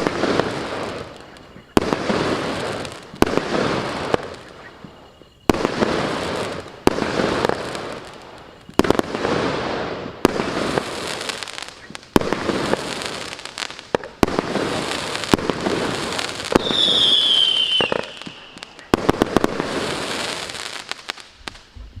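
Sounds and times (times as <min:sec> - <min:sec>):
fireworks bangs and crackling: 0:00.0 - 0:22.0
falling firework whistle: 0:14.0 - 0:22.0.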